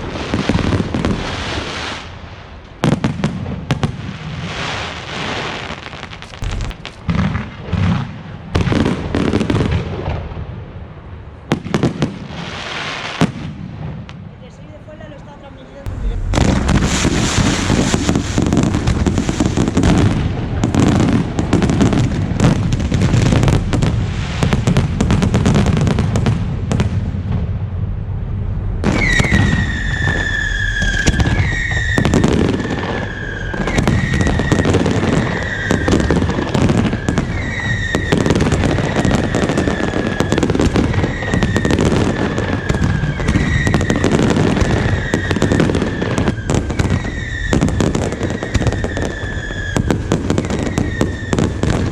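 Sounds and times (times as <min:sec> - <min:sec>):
fireworks bangs and crackling: 0:00.0 - 0:51.9
fireworks whistles: 0:15.9 - 0:25.6, 0:28.8 - 0:51.9.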